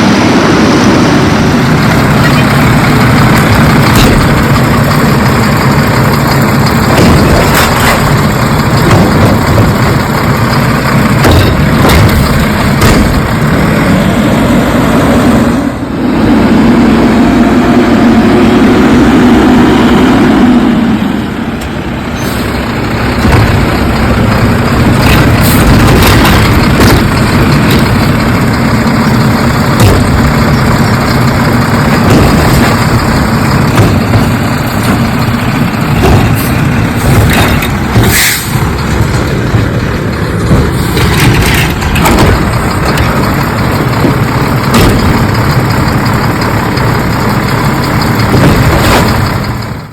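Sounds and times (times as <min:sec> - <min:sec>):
garbage truck engine running: 0:00.0 - 0:49.9
sharp metal clanks and knocks: 0:03.1 - 0:13.7, 0:23.0 - 0:46.2.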